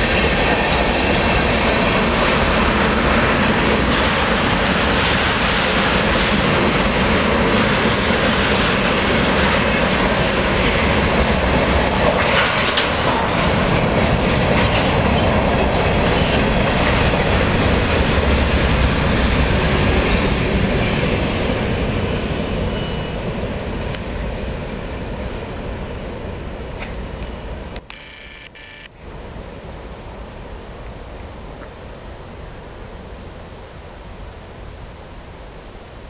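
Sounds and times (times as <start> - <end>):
wheels clacking over rail joints: 0.0 - 20.2
freight train wheels rumbling: 0.0 - 27.7.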